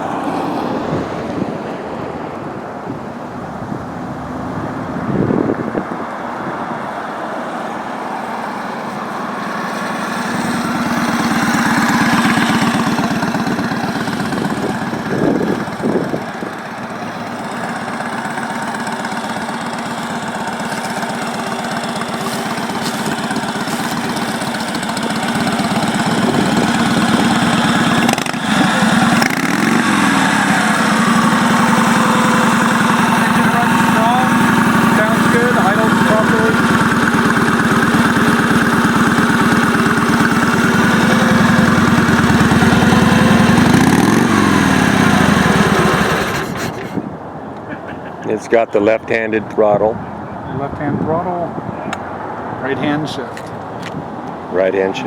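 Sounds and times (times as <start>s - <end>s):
motorcycle engine running: 7.6s - 48.2s.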